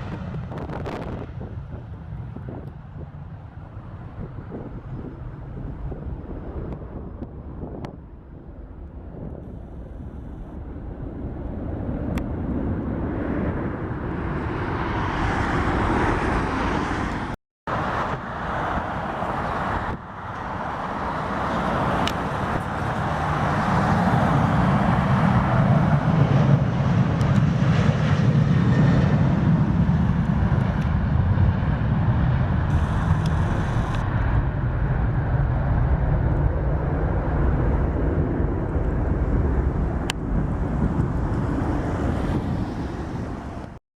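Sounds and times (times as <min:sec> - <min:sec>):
jet engines roaring: 0:00.0 - 0:43.8
deep low rumble: 0:30.2 - 0:42.8.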